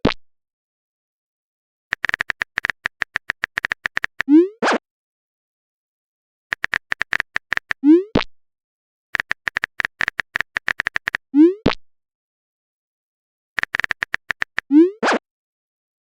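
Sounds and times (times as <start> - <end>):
typing clicks: 1.9 - 4.3, 6.5 - 7.8, 9.2 - 11.2, 13.6 - 14.7.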